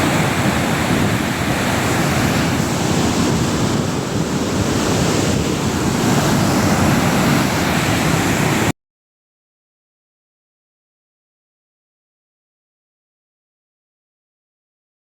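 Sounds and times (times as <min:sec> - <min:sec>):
waterfall roaring: 0:00.0 - 0:08.7.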